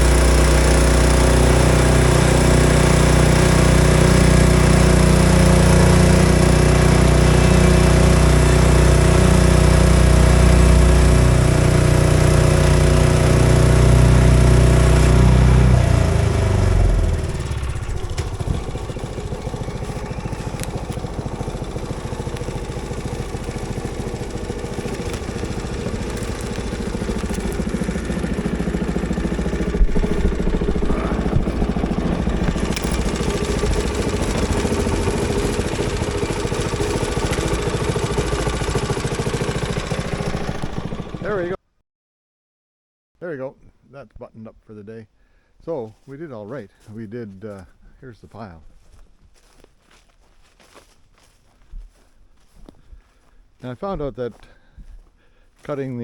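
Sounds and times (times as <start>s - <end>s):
engine revving then idling: 0.0s - 41.6s.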